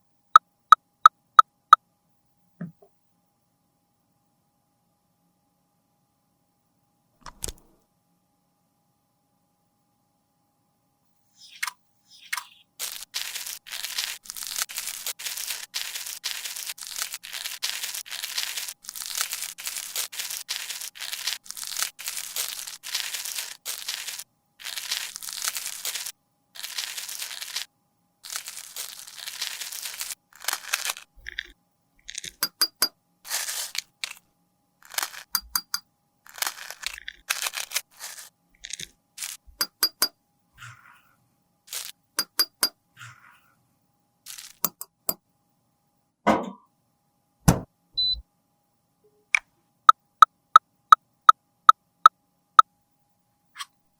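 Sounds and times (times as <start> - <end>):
powder being scraped and crushed: 12.8 - 41.0, 41.7 - 43.2, 44.3 - 44.9
sharp clicks and taps: 32.2 - 32.9, 35.4 - 35.8, 39.5 - 40.1, 42.2 - 42.7.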